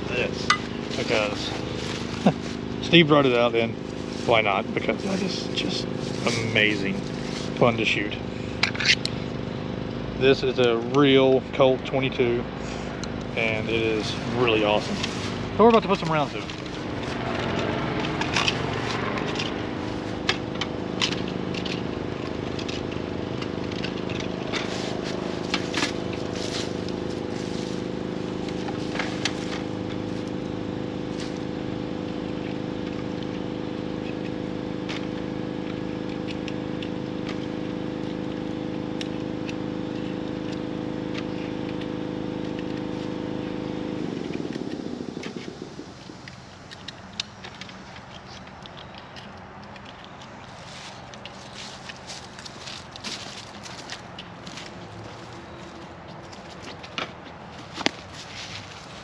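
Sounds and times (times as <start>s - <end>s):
engine idling: 0.0s - 59.0s
sharp clicks: 44.2s - 52.0s.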